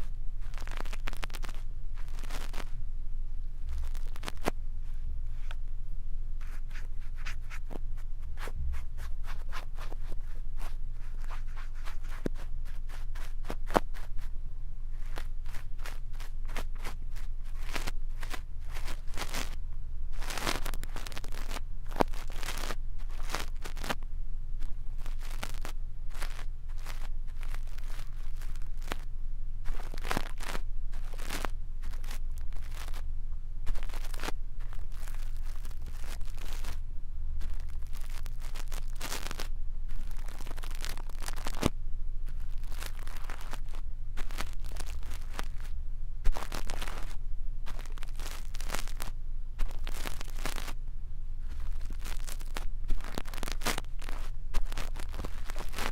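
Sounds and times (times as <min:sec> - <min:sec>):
brush scratching on microphone: 0:00.0 - 0:02.8, 0:03.6 - 0:05.6, 0:06.4 - 0:14.3, 0:14.9 - 0:24.0, 0:24.6 - 0:33.0, 0:33.7 - 0:36.8, 0:37.4 - 0:50.8, 0:51.4 - 0:55.9
steady low hum: 0:00.0 - 0:55.9.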